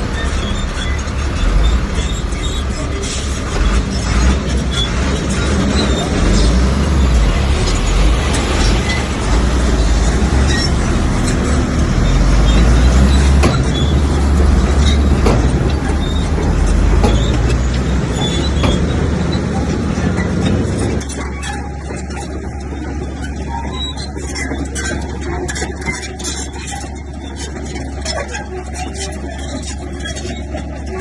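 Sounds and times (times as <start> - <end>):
diesel engine rumbling under load: 0.0 - 31.0
sharp knocks: 12.4 - 21.0.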